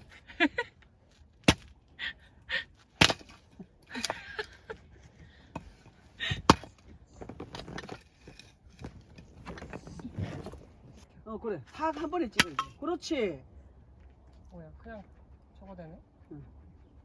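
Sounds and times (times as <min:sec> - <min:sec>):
axe chopping wood: 0:01.4 - 0:01.8, 0:03.0 - 0:03.4, 0:06.3 - 0:06.8.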